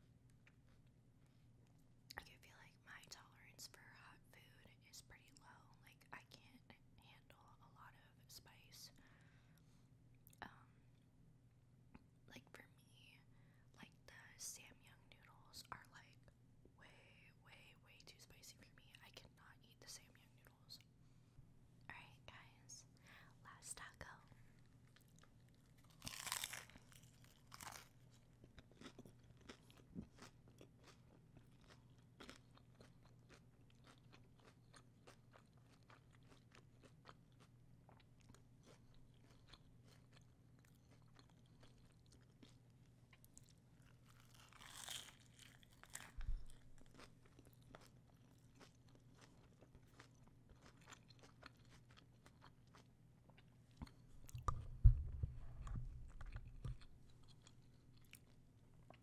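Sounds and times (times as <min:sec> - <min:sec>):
crunchy chewing: 0:24.4 - 0:54.6, 0:55.6 - 0:59.0
low thumps: 0:54.4 - 0:56.8.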